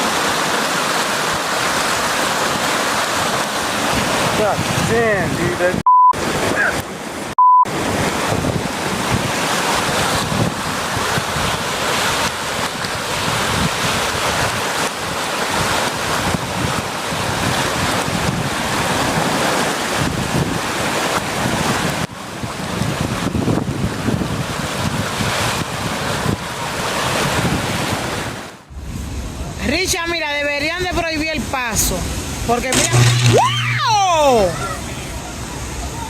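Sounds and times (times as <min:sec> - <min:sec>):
wind buffeting microphone: 0:27.1 - 0:32.9.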